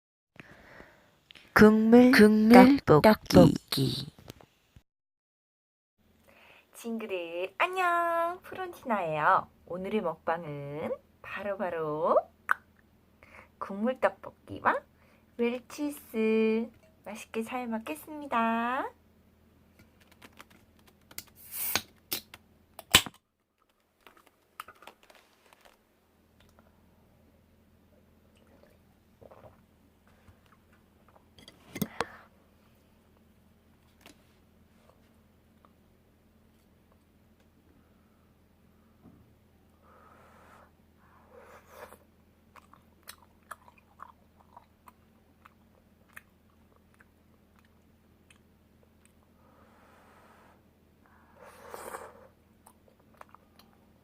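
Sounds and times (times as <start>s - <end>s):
short hiss: 21.4s - 21.9s
person chewing: 41.9s - 49.2s, 52.6s - 53.8s.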